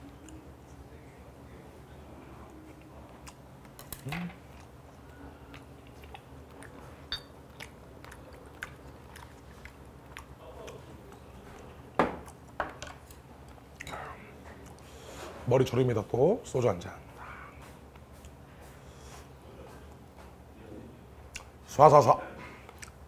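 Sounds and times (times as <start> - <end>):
chewing and mouth clicks: 2.4 - 14.9, 21.3 - 21.6, 22.6 - 23.0.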